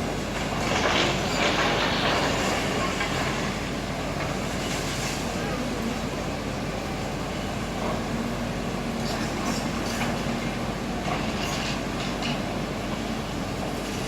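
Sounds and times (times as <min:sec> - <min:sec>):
demolition machinery rumbling: 0:00.0 - 0:10.2.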